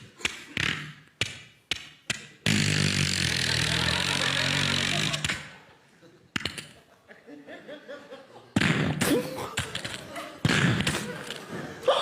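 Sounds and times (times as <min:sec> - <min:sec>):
mouth clicks and pops: 0:00.1 - 0:03.7, 0:06.3 - 0:06.8.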